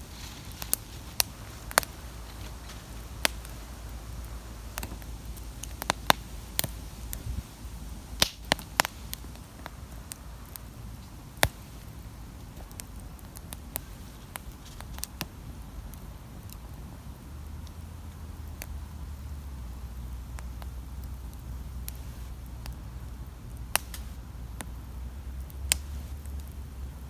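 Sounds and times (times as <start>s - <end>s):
campfire crackling and popping: 0.0s - 27.0s.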